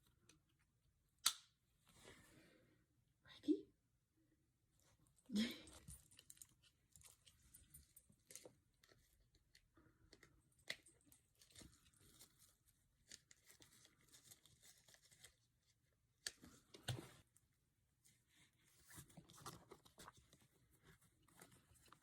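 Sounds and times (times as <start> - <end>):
faint rustles and clicks: 4.8 - 22.0.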